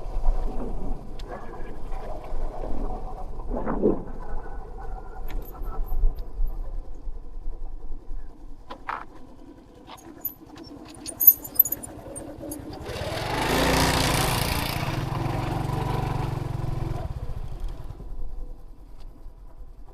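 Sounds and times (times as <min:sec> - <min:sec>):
small engine running: 0:09.2 - 0:18.9.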